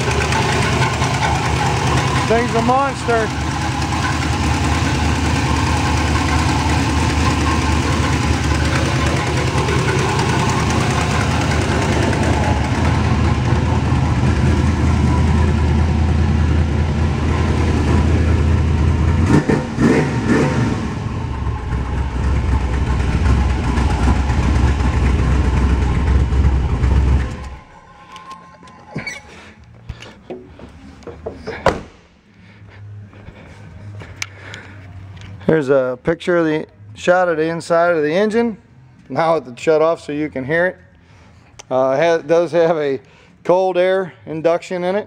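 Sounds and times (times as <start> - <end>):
car engine idling: 0.0 - 35.4.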